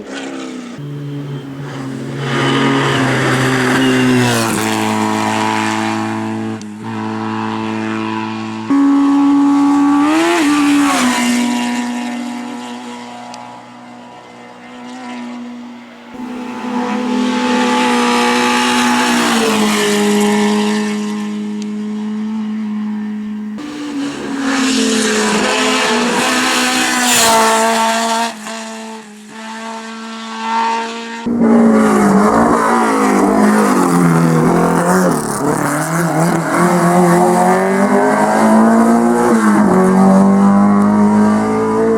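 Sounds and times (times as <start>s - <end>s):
racing car engines revving: 0.0s - 41.9s
tyre squeal: 0.8s - 6.0s.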